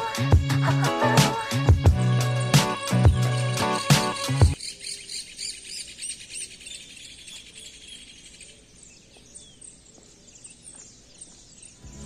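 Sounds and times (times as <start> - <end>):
faint bird chirps: 3.2 - 12.0
outdoor background hiss: 3.6 - 12.0.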